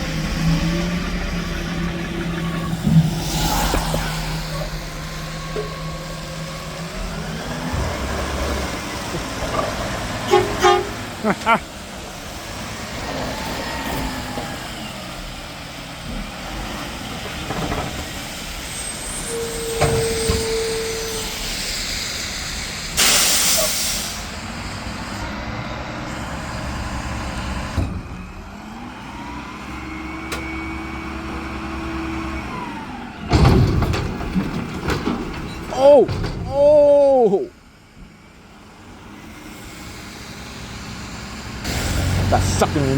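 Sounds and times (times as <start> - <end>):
garbage truck engine running: 0.0 - 42.9
air brake hiss: 19.0 - 24.4.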